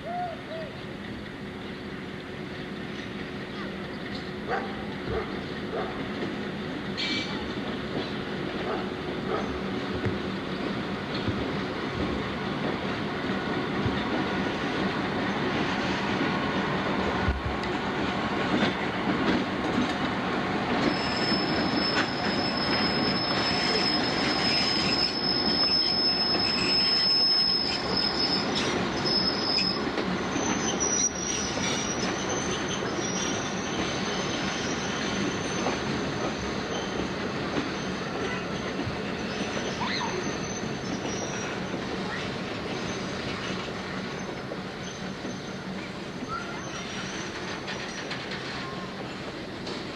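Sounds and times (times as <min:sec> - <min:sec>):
freight train rumbling on rails: 0:00.0 - 0:49.9
high wheel squeal: 0:20.8 - 0:48.4.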